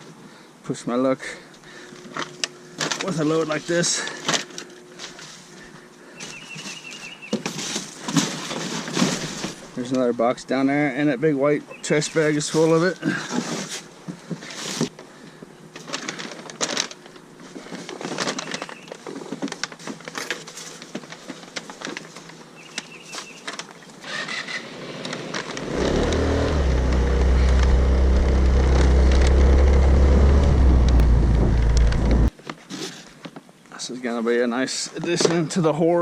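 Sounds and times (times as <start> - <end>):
bags and boxes rustling: 1.8 - 9.8, 11.9 - 24.1
vehicle engine droning: 24.7 - 32.3.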